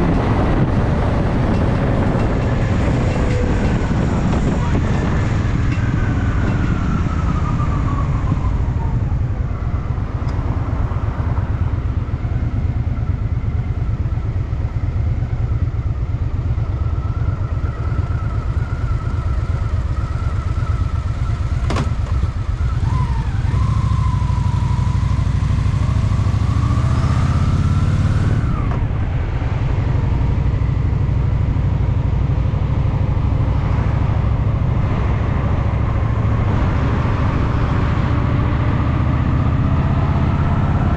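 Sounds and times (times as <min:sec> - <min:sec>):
motorcycle engine running: 0:09.6 - 0:39.3.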